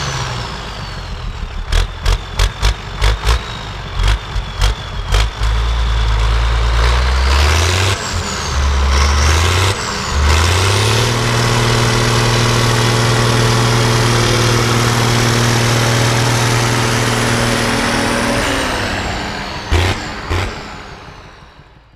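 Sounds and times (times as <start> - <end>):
tractor diesel engine revving: 0.0 - 21.9.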